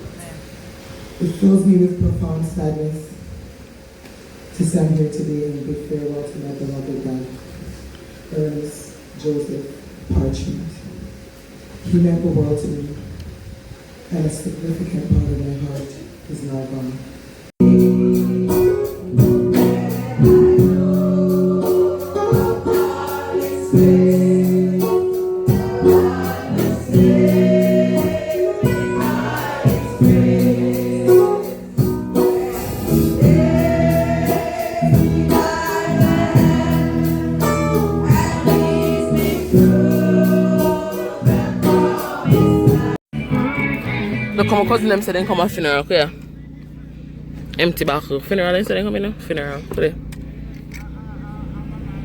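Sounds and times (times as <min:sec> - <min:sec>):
choir singing held notes: 0:17.6 - 0:45.0
instrumental backing with beat: 0:17.6 - 0:45.0.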